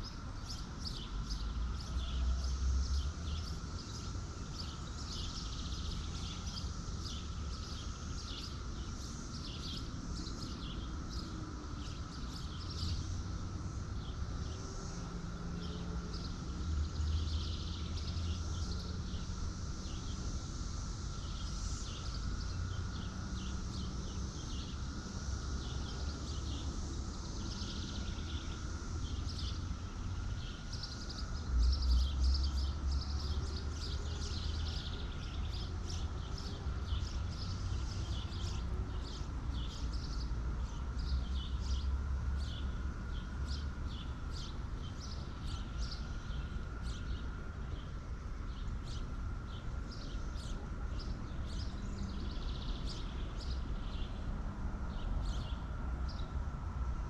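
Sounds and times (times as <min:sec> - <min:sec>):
birds chirping: 0:20.8 - 0:56.3.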